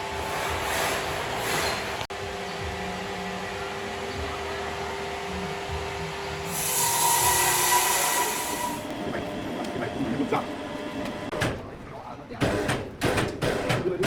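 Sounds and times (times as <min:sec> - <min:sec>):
saw cutting wood: 0:00.0 - 0:02.1, 0:06.4 - 0:08.9.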